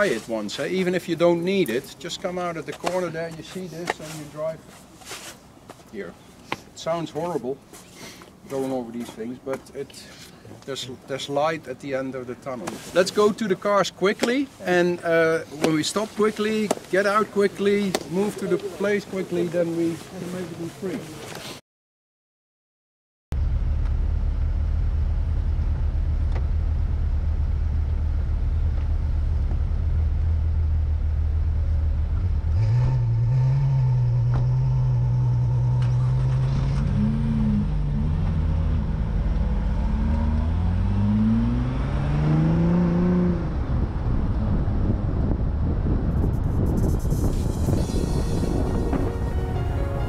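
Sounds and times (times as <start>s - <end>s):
car engine accelerating: 23.4s - 50.0s.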